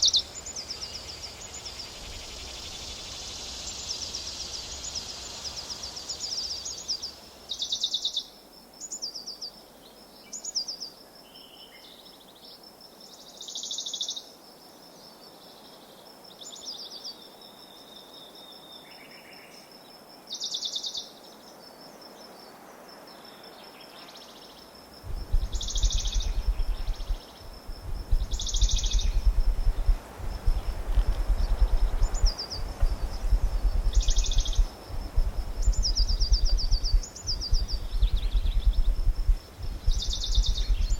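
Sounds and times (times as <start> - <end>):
bird chirping: 0.0 - 9.6, 24.0 - 40.9.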